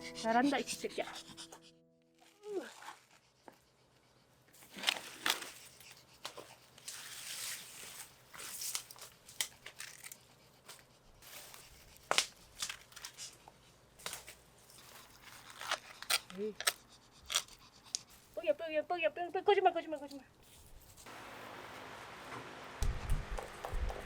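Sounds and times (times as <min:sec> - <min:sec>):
rustling and crinkling: 0:02.2 - 0:03.7, 0:04.5 - 0:18.5
sharp snaps and crackles: 0:08.6 - 0:10.2, 0:12.0 - 0:13.3, 0:14.0 - 0:18.1.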